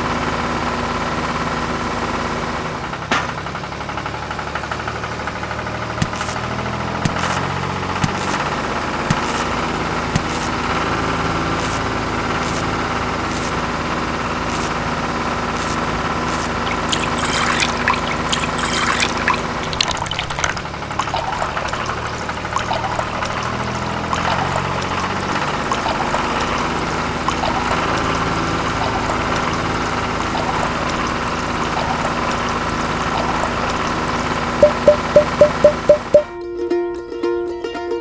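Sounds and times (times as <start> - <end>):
small motor running: 14.3 - 19.8
juice pouring into a bucket: 16.4 - 34.6
plucked string music: 34.6 - 38.0.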